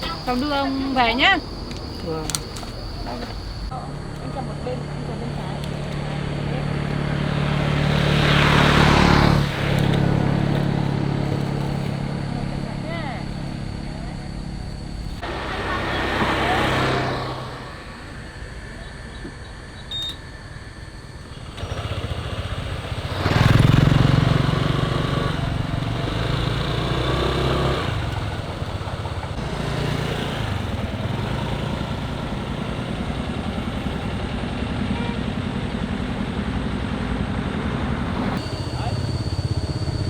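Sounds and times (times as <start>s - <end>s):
motorbike engine running: 0.0s - 19.6s, 21.2s - 40.0s.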